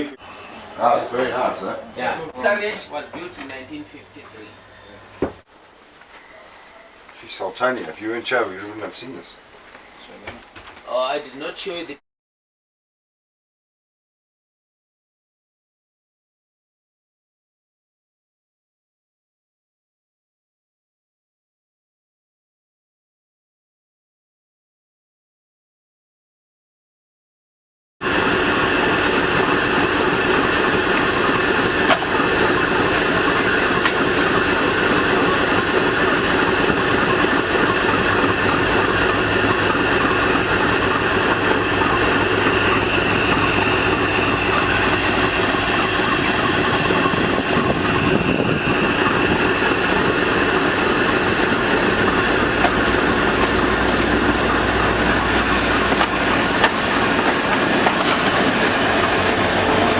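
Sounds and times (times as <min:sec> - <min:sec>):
train rushing and rumbling: 0:28.0 - 0:59.9.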